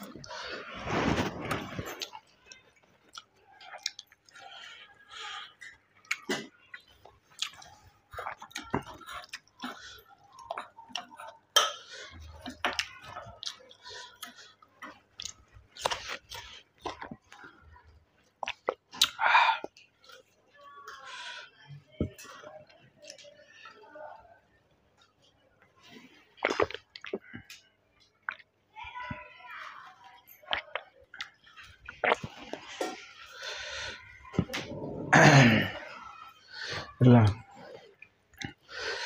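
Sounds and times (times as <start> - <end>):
man chewing with wet smacks: 1.9 - 21.0, 24.9 - 28.7, 30.4 - 33.6, 36.8 - 39.0.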